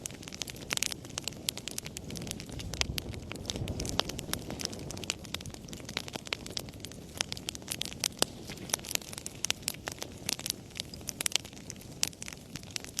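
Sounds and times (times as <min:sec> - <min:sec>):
fire crackling: 0:00.0 - 0:13.0.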